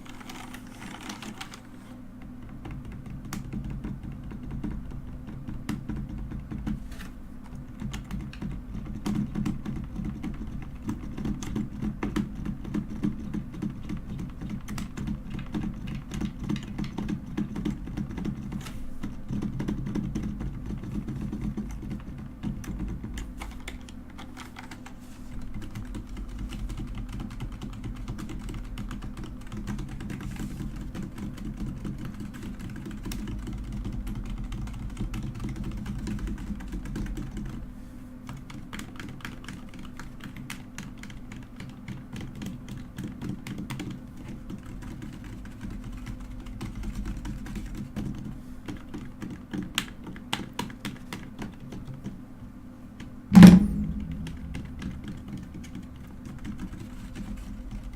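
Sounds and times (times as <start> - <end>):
mechanical keyboard typing: 0.0 - 1.8, 2.4 - 37.6, 38.3 - 52.2, 53.4 - 57.9.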